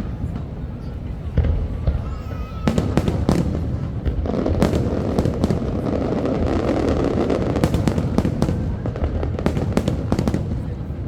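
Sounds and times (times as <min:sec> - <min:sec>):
fireworks crackling: 0:00.0 - 0:11.0.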